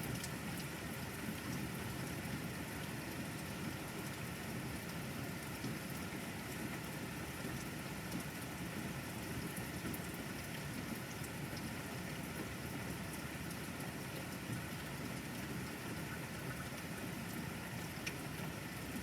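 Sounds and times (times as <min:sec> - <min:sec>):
tiny raindrop ticks: 0:18.0 - 0:18.2.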